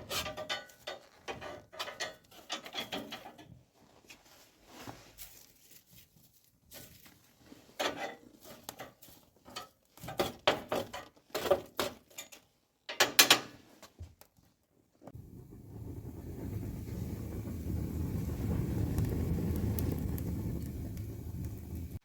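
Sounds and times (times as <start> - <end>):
handling scraping and rattling: 0.0 - 15.2.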